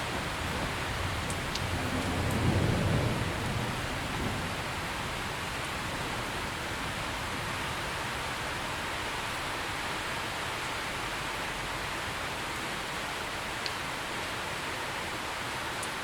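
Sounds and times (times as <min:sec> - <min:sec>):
distant thunder rumble: 0:00.0 - 0:07.9
heavy rain: 0:00.0 - 0:16.0.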